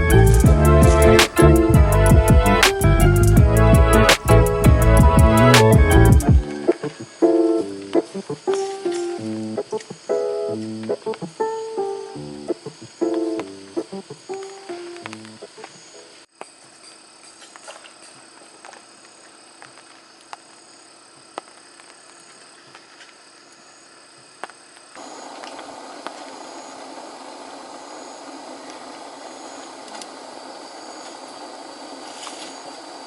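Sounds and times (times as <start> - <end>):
insects chirring: 0.0 - 33.0
steady rushing hiss: 0.0 - 33.0.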